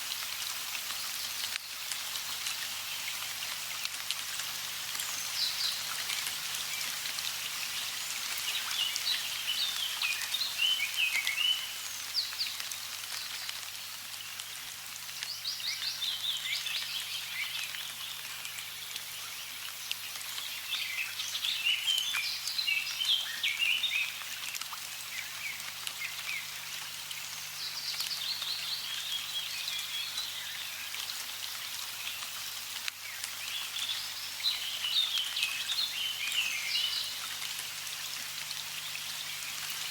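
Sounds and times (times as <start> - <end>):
birds singing: 7.6 - 12.6, 15.2 - 24.2, 27.2 - 31.0, 33.1 - 37.3.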